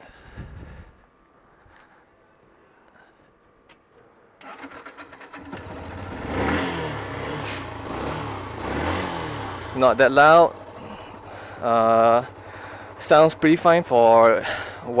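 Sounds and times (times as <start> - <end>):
motorcycle engine running: 4.5 - 15.0.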